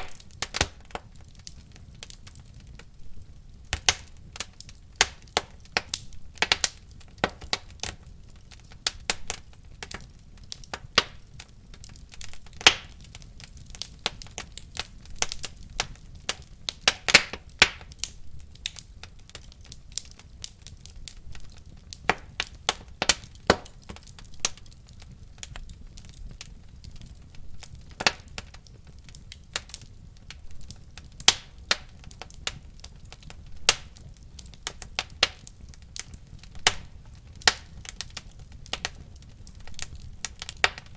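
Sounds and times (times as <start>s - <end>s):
low rumble of flames: 0.0s - 40.9s
wood fire crackling and popping: 0.0s - 40.9s.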